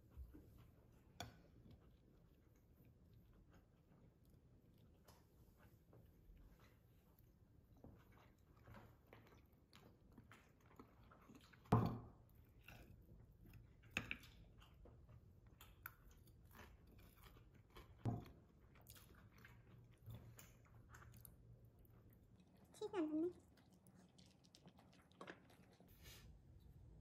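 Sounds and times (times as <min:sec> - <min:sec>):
person chewing crunchy food: 0:08.1 - 0:22.7, 0:23.4 - 0:26.0.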